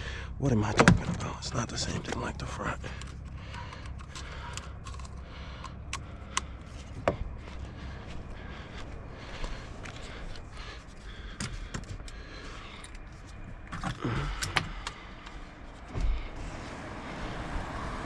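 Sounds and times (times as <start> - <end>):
clicks and rattles of parts: 1.8 - 7.2, 9.8 - 15.8.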